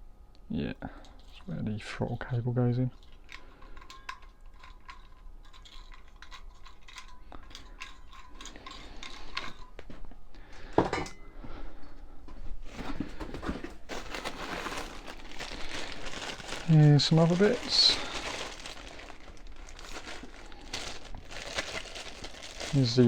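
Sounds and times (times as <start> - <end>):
small metal parts clinking: 2.9 - 9.8, 13.9 - 23.0
plastic crinkling: 12.7 - 23.0.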